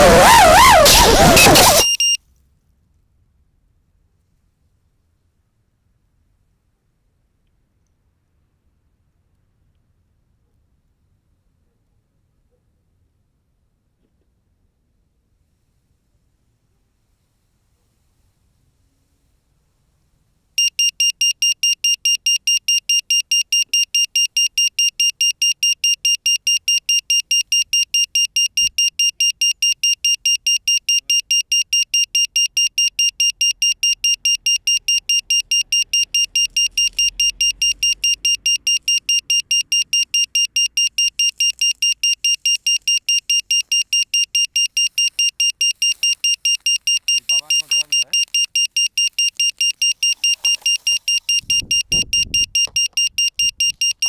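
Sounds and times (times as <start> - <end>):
drone buzzer beeping: 0.0 - 2.2, 20.6 - 54.0.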